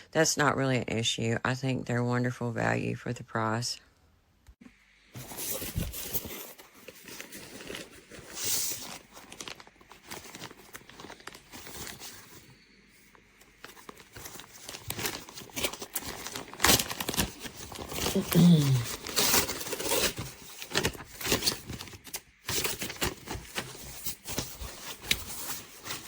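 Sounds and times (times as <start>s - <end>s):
plastic poncho crinkling: 5.2s - 26.0s.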